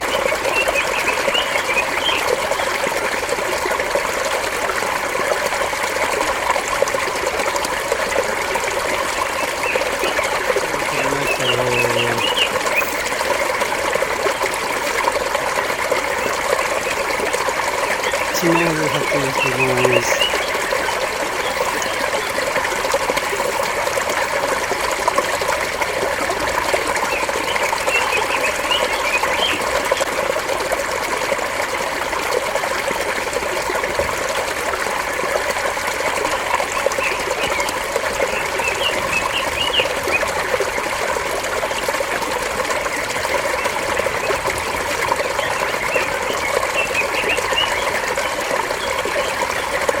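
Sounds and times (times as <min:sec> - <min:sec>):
water babbling over stones: 0:00.0 - 0:50.0
small birds chirping: 0:09.2 - 0:13.1, 0:18.0 - 0:22.4.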